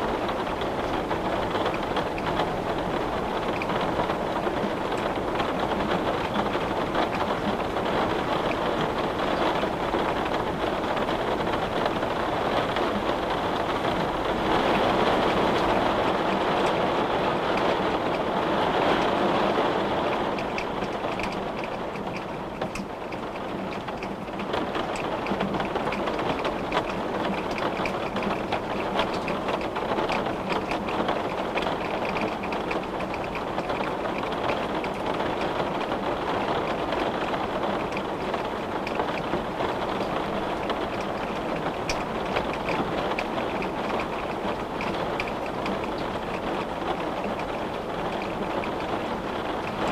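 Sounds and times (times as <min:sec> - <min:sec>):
rain rushing: 0:00.0 - 0:49.9
raindrops ticking: 0:00.0 - 0:49.9
steady rain: 0:00.0 - 0:49.9.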